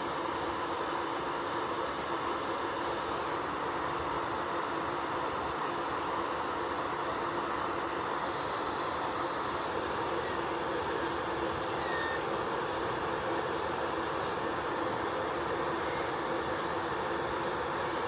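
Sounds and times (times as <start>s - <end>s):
electric nail drill running: 8.4s - 18.0s.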